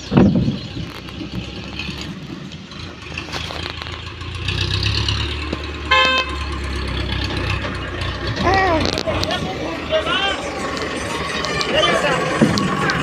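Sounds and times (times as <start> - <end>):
vehicle engine rumble: 0.0 - 13.0
short horn beep: 5.9 - 6.4.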